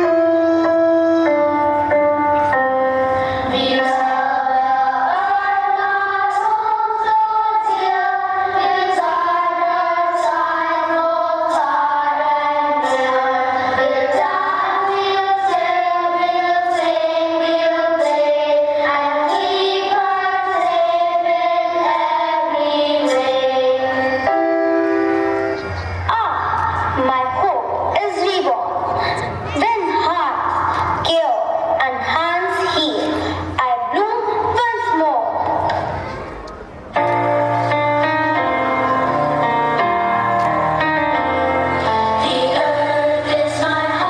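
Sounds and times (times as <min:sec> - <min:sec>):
young voices singing: 0:03.1 - 0:36.4, 0:37.0 - 0:44.0
instrumental backing with light beat: 0:35.7 - 0:44.0.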